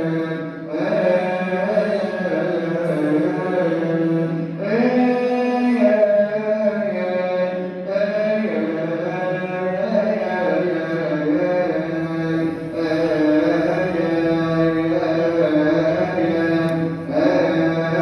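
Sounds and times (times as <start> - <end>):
priest chanting: 0.0 - 18.0.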